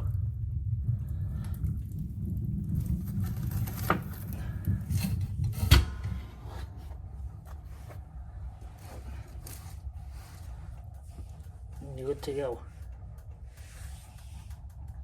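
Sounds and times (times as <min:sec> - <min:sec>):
wood stove rumble: 0:00.0 - 0:15.0.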